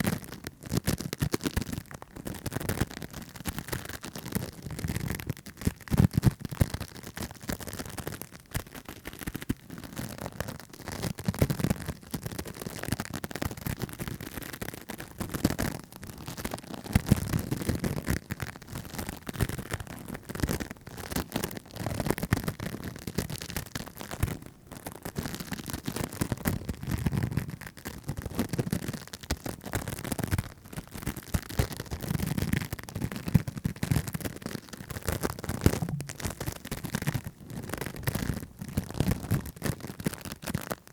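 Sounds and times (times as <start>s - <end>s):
tapping and scratching on microphone: 0.0s - 40.9s
low rubbing: 35.7s - 38.6s.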